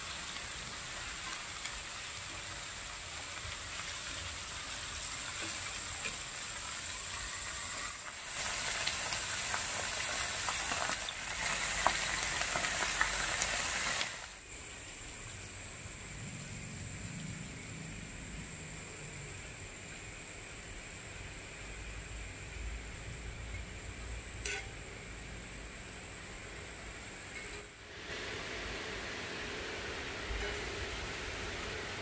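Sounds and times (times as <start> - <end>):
food sizzling in a wok: 0.0 - 32.0
metal utensil clicking on pan: 24.4 - 24.8.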